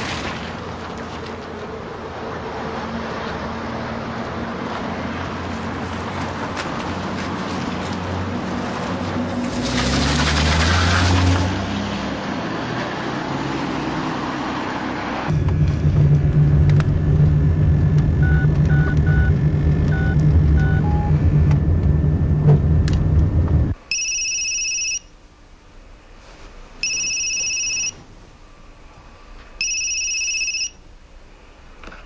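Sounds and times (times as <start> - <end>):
low vehicle rumble: 0.0 - 23.8
short electronic beeps: 18.2 - 21.2, 26.8 - 28.0
telephone ringing: 23.9 - 25.1, 26.8 - 28.0, 29.6 - 30.8.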